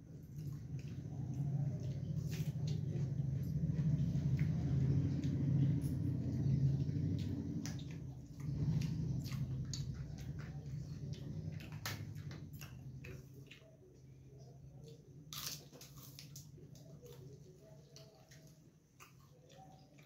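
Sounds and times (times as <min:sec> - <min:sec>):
chewing and crunching food: 0:00.0 - 0:20.0
low steady hum: 0:00.0 - 0:20.0
crisp papad crunch: 0:15.3 - 0:19.8.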